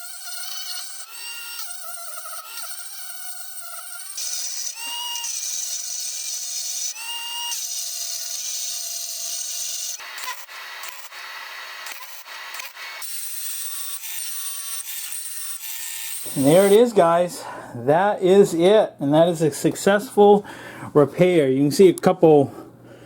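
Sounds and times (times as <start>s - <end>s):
power grinder on metal: 0.0s - 16.9s.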